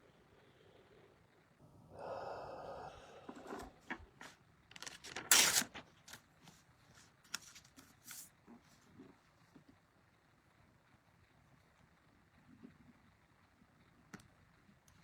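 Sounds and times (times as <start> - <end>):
cards being shuffled: 3.4 - 6.2, 6.9 - 8.3.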